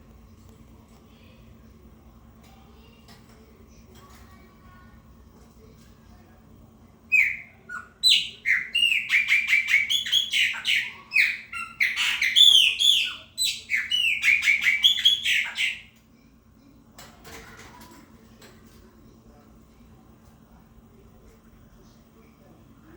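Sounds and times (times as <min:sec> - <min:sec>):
blackbird singing whistled notes: 0:07.1 - 0:15.8.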